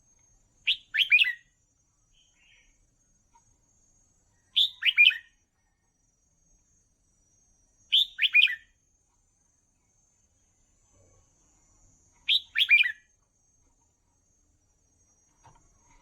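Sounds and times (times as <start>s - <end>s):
bulbul singing: 0.6s - 2.9s, 4.5s - 5.4s, 7.9s - 8.8s, 12.2s - 13.2s.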